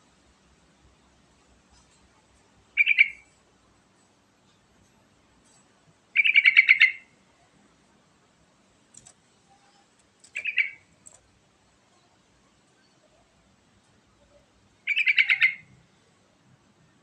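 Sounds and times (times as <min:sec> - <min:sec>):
bird singing quick repeated notes: 0:02.8 - 0:03.2, 0:06.2 - 0:07.1, 0:10.3 - 0:10.9.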